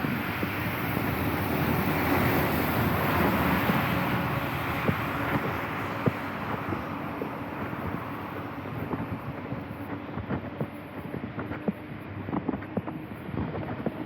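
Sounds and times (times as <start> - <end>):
tyres hissing on wet road: 0.0 - 9.2.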